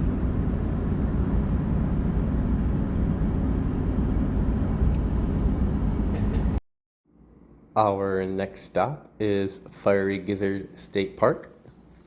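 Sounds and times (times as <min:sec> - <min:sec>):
truck engine and road noise: 0:00.0 - 0:06.6.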